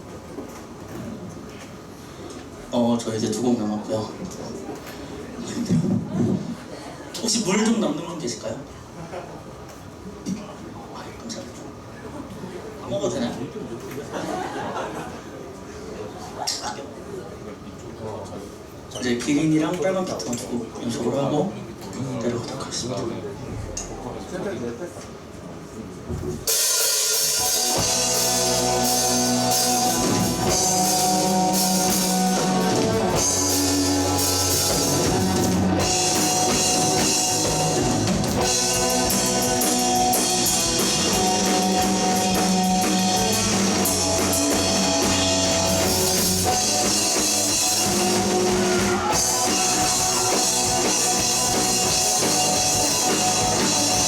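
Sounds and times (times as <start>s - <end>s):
rock band playing live: 26.4s - 54.0s.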